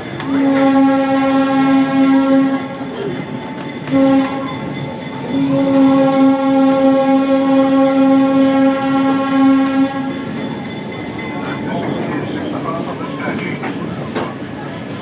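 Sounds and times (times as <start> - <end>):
moving train rumble: 0.0 - 15.0
locomotive air horn: 0.2 - 2.8, 3.9 - 4.6, 5.3 - 10.3.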